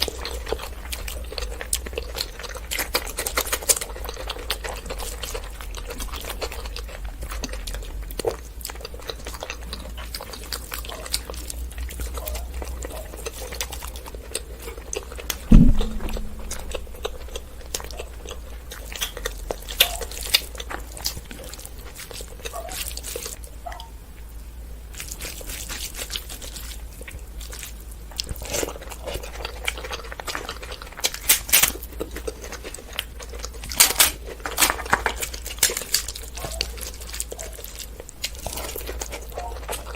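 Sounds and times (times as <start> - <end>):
person chewing food: 0.0 - 23.8, 24.9 - 39.9
loud thump: 15.5 - 17.2.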